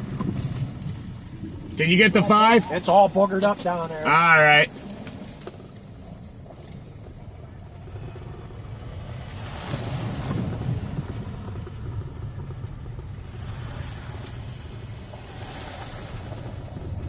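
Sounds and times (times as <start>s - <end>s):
vehicle engine rumbling: 0.0s - 17.0s
rushing noise: 1.4s - 4.8s.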